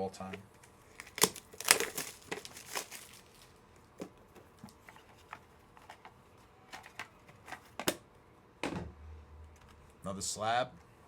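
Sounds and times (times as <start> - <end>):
plastic card cases clicking: 1.0 - 3.3, 6.7 - 8.0.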